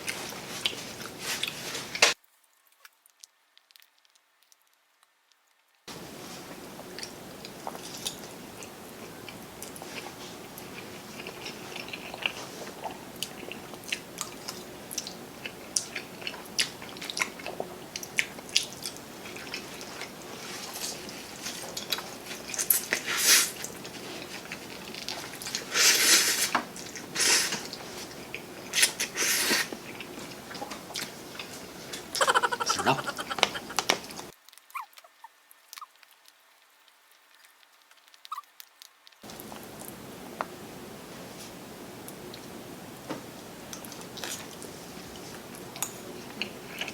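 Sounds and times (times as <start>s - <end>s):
chewing and biting: 6.9s - 25.7s
wet mouth clicks: 32.2s - 35.1s.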